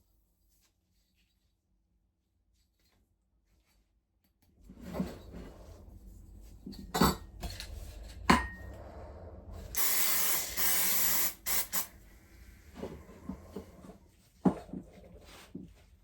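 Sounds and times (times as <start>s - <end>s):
aerosol spray can hissing: 9.8s - 11.9s.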